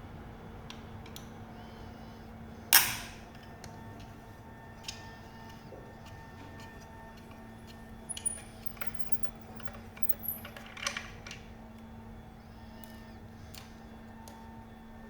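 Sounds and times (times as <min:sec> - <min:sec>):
steady low hum: 0:07.1 - 0:10.5
hand tools clicking and tapping: 0:08.1 - 0:10.6.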